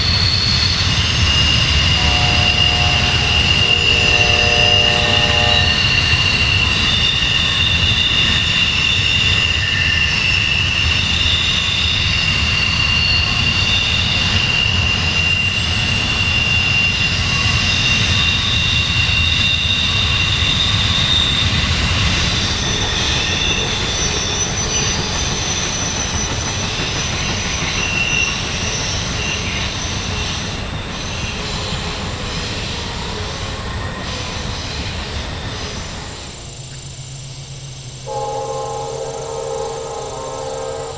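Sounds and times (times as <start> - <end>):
train rumble: 0.0 - 40.9
train wheels squealing on rails: 0.0 - 40.9.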